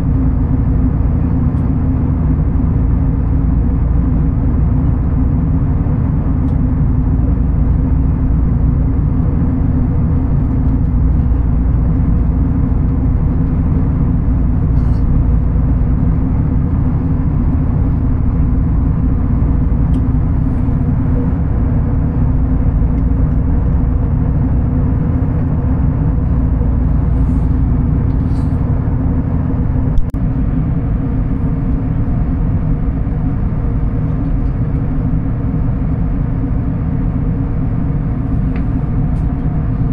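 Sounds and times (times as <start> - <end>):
vehicle engine rumble inside: 0.0 - 39.9.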